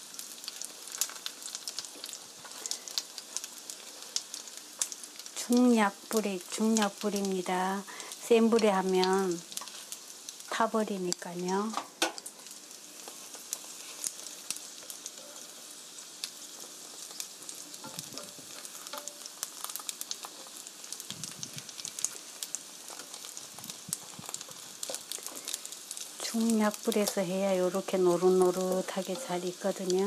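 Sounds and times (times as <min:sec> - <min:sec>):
food sizzling in frying pan: 0:00.0 - 0:30.0.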